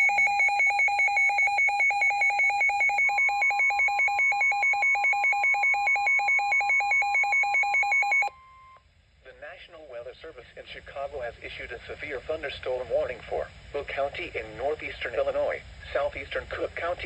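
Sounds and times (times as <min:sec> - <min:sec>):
rapid pulsing electronic beep: 0:00.0 - 0:08.3.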